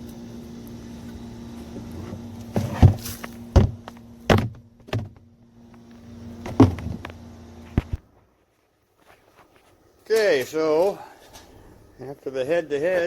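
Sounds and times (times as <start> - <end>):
steady low hum: 0.0 - 10.1
sharp knocks and thuds: 2.5 - 5.2, 6.4 - 7.1.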